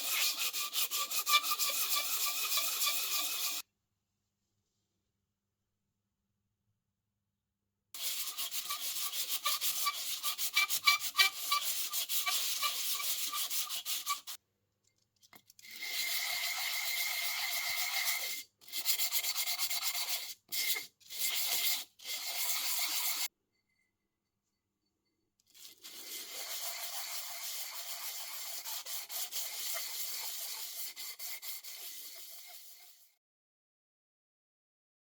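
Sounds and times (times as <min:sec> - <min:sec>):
sanding metal: 0:00.0 - 0:03.6, 0:08.0 - 0:14.4, 0:26.3 - 0:33.1.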